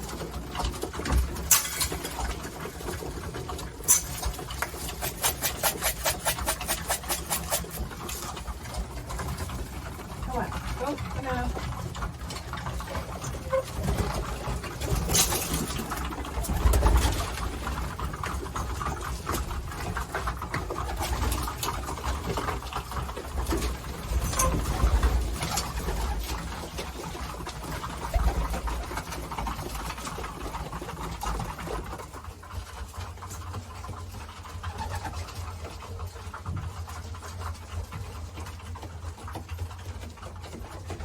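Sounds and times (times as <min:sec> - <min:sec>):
pigeons cooing: 0:00.0 - 0:10.7, 0:15.8 - 0:30.8, 0:34.5 - 0:35.6.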